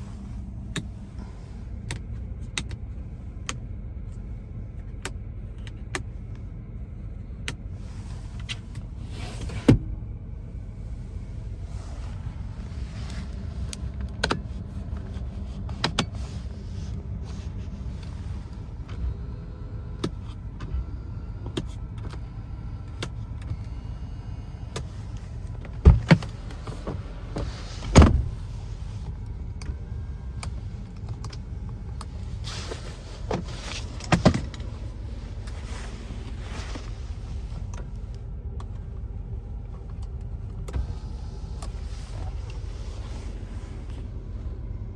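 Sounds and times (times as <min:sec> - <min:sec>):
car engine idling: 0:00.0 - 0:44.9
heavy thumps: 0:25.7 - 0:28.4.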